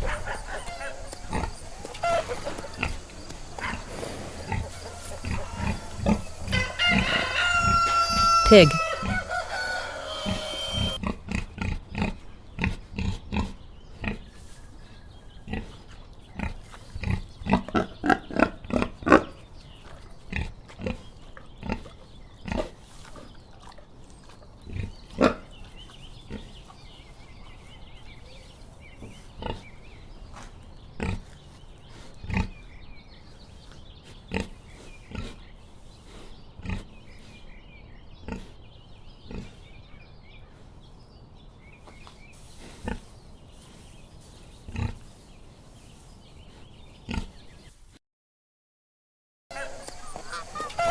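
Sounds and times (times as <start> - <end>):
pig grunting: 0.0 - 14.3, 15.4 - 19.5, 20.2 - 27.0, 36.6 - 37.4, 38.2 - 38.6, 49.5 - 50.9.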